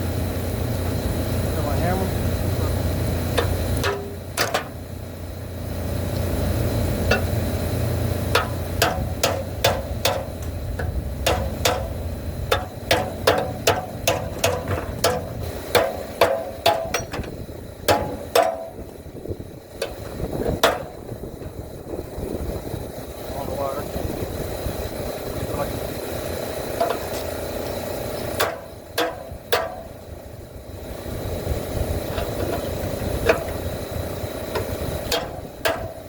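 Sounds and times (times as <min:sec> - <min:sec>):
low hum: 0:00.0 - 0:23.3
hammer striking metal: 0:03.4 - 0:04.8, 0:07.1 - 0:07.4, 0:08.3 - 0:17.3, 0:17.9 - 0:18.9, 0:20.6 - 0:21.0, 0:28.4 - 0:30.0, 0:35.1 - 0:36.0.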